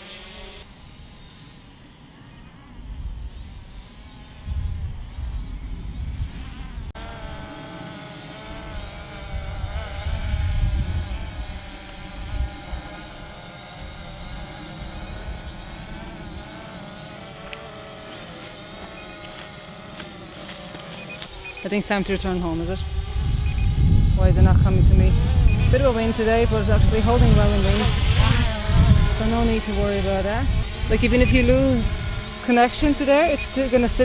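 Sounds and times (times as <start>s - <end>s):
drone propellers buzzing: 0.0s - 34.0s
wind rumbling on microphone: 2.7s - 7.4s, 8.5s - 17.2s, 21.2s - 34.0s.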